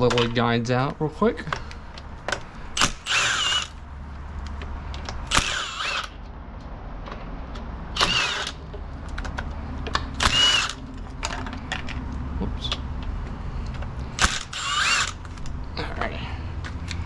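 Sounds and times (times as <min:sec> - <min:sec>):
clicks of tool and metal parts: 0:00.0 - 0:00.4, 0:01.4 - 0:02.9
power driver whirring: 0:02.7 - 0:03.8, 0:05.2 - 0:06.2, 0:07.9 - 0:08.7, 0:10.0 - 0:10.9, 0:13.7 - 0:15.6.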